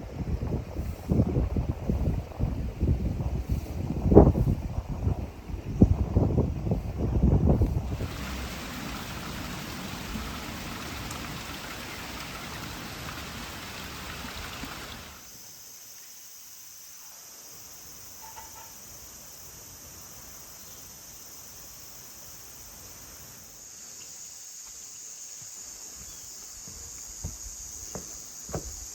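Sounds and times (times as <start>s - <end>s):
outdoor rushing noise: 7.6s - 15.2s.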